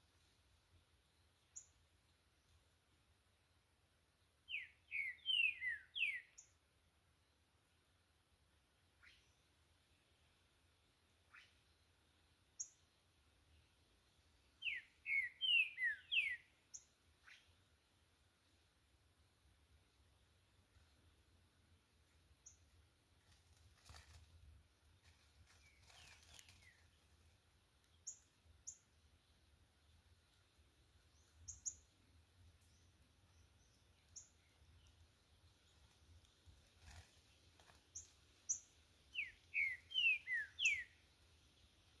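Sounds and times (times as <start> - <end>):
songbirds chirping: 0.0 - 42.0
bird whistled notes: 4.5 - 6.3, 14.6 - 16.4, 39.2 - 40.9
short high bird chirp: 4.5 - 6.5, 14.6 - 17.5, 38.5 - 40.9.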